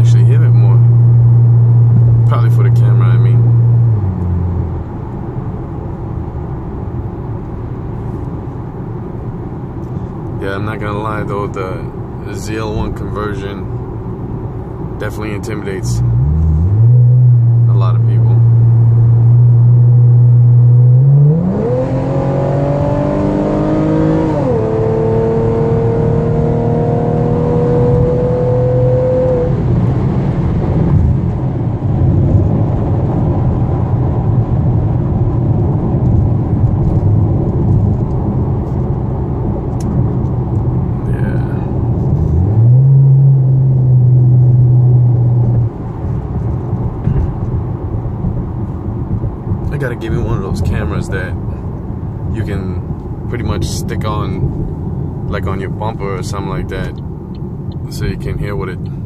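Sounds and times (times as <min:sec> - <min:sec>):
road noise: 0:00.0 - 0:59.0
car engine accelerating: 0:15.7 - 0:59.0.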